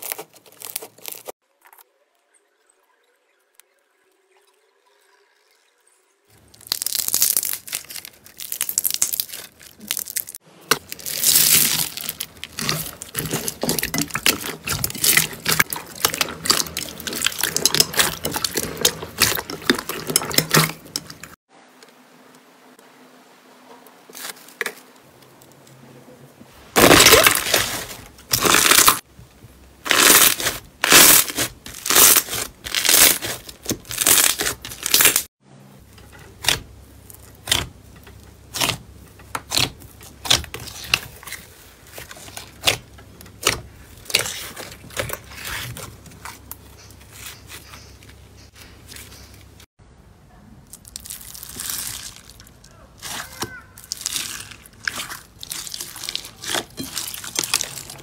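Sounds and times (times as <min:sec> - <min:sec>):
slime squishing and crackling: 0:00.0 - 0:01.4, 0:06.4 - 0:21.4, 0:26.8 - 0:29.1, 0:29.8 - 0:35.3, 0:36.1 - 0:49.3, 0:50.7 - 0:58.0.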